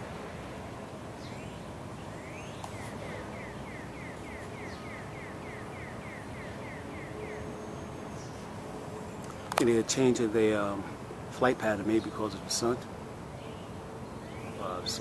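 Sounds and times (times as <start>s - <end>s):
low outdoor rumble: 0.0s - 15.0s
bird chirping: 1.2s - 9.6s, 13.3s - 15.0s.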